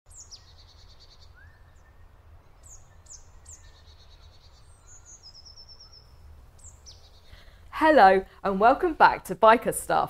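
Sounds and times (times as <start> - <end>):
songbird calls and trills: 0.1 - 7.5.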